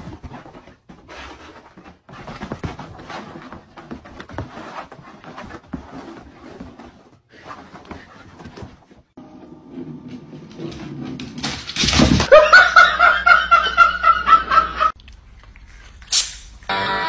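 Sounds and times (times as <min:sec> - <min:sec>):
person laughing hard: 0:12.3 - 0:14.9.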